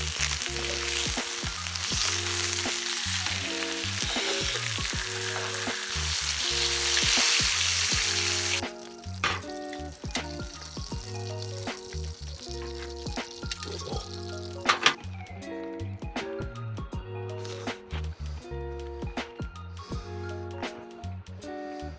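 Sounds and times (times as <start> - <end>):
steak sizzling over fire: 0.0 - 15.0
background music: 0.0 - 21.9.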